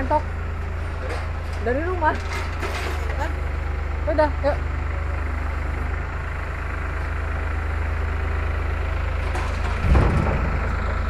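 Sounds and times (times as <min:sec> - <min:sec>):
diesel truck engine idling: 0:00.0 - 0:11.0
low thump: 0:09.7 - 0:10.7.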